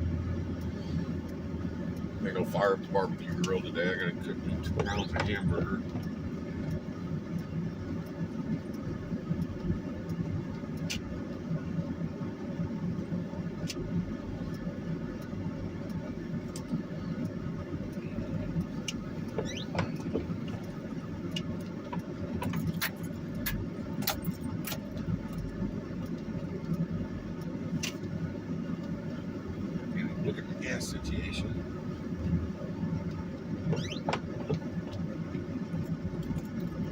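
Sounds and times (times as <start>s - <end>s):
car rumbling on icy road: 0.0s - 36.9s
light clicks and ticks: 0.4s - 11.4s, 13.6s - 36.9s.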